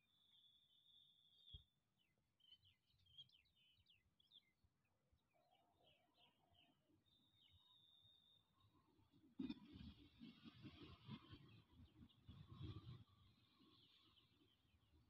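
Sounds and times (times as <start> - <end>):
faint bird chirps: 0.0 - 8.9.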